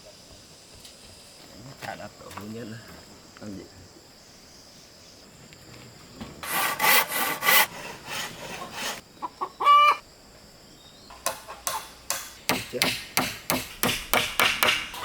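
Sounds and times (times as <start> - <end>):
hand saw cutting wood: 6.4 - 9.0
chicken call: 9.2 - 10.0
sharp knocks: 11.1 - 15.0.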